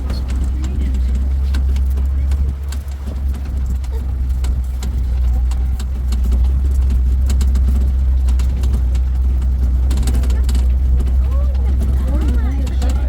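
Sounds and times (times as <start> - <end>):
truck engine rumbling: 0.0 - 13.0
vehicle clicks and rattles: 0.0 - 13.0.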